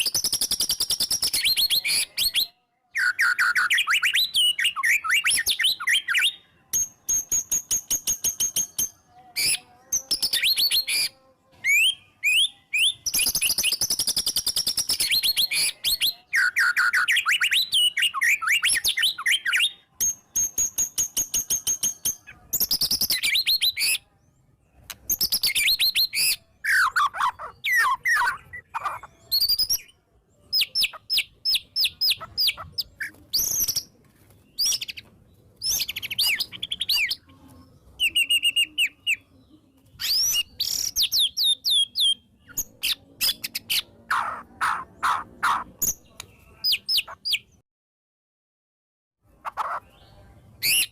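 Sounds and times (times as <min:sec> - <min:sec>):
songbird singing varied song: 0:00.0 - 0:47.6.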